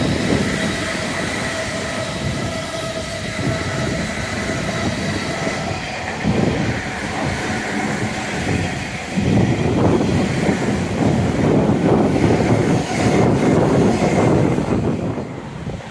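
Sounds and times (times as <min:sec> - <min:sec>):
electric train rumbling past: 0:00.0 - 0:15.9.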